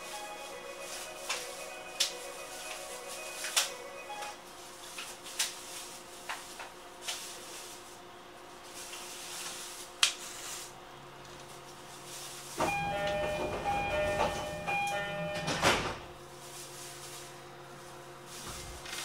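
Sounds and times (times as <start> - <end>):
train equipment hum: 12.5 - 19.0.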